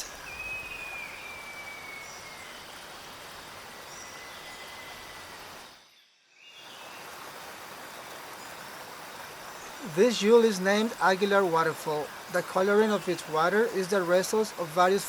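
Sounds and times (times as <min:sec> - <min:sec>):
waterfall rushing: 0:00.0 - 0:05.8, 0:06.7 - 0:15.0.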